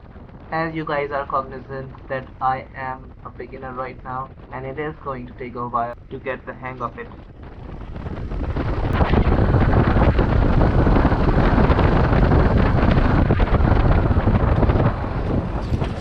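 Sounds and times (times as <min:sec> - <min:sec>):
wind buffeting microphone: 0:00.0 - 0:16.0
road noise: 0:06.8 - 0:16.0.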